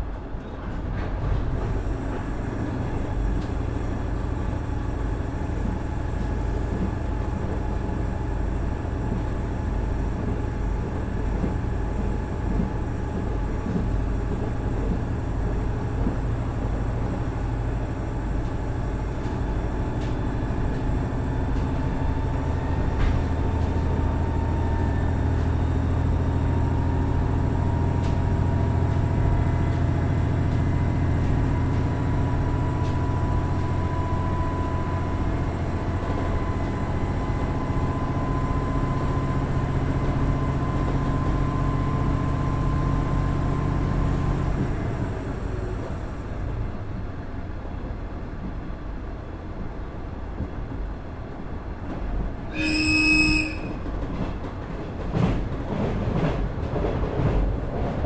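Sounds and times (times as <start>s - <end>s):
diesel railcar engine droning: 0.0s - 58.0s
rail noise: 0.0s - 58.0s
train horn blast: 52.5s - 53.9s.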